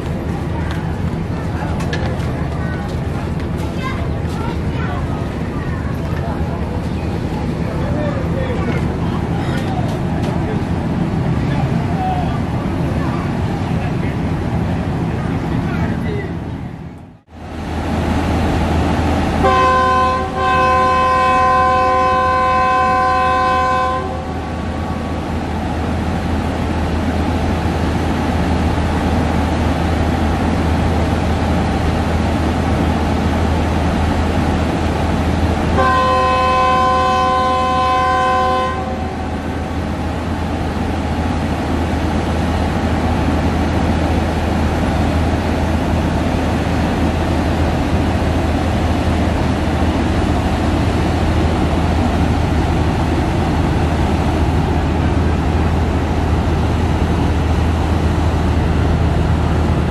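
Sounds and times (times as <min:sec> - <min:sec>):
train rolling past: 0:00.0 - 0:59.9
locomotive horn chord: 0:19.4 - 0:24.6, 0:35.8 - 0:39.4.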